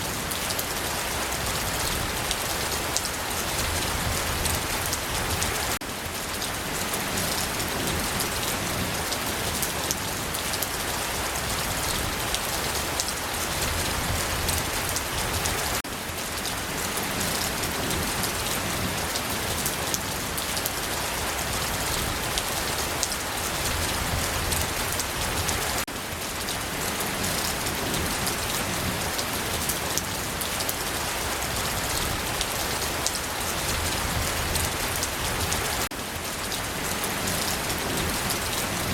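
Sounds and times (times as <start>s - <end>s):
steady rain falling: 0.0s - 38.9s
rain drop ticks: 9.0s - 20.9s.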